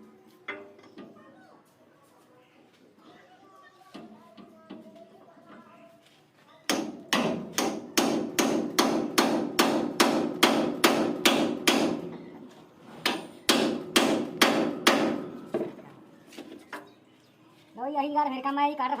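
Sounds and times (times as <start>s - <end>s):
hammer blows ringing: 6.7s - 12.2s, 13.0s - 15.7s.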